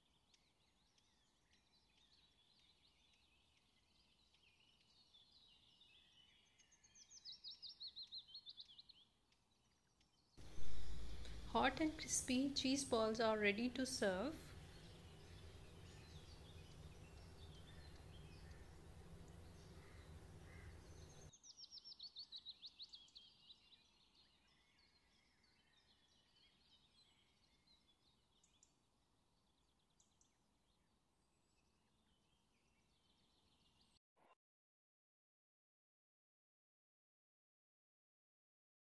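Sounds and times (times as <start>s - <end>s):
faint bird chirps: 0.0s - 28.8s
songbird trill: 0.0s - 34.0s
low room hum: 10.4s - 21.3s.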